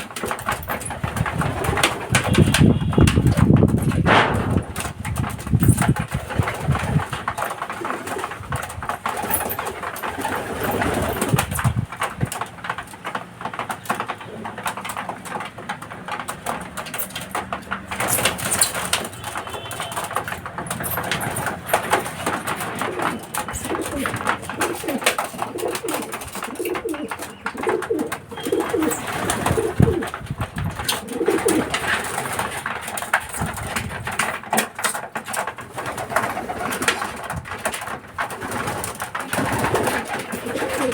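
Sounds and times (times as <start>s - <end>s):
birds clicking and scuffling: 0.0s - 40.9s
pigeons cooing: 20.8s - 32.6s, 38.3s - 40.9s.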